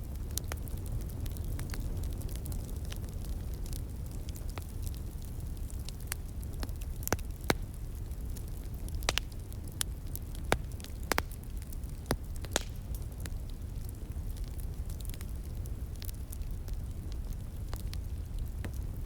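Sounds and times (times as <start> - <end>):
wood fire crackling and popping: 0.0 - 19.0.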